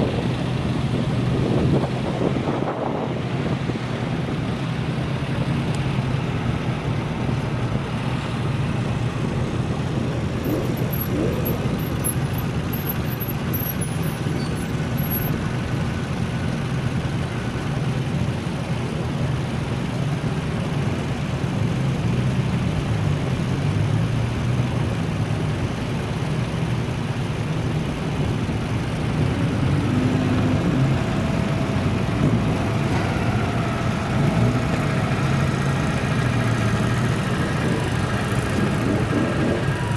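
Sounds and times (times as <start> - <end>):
traffic noise: 0.0 - 39.9
car engines driving past: 26.8 - 39.9.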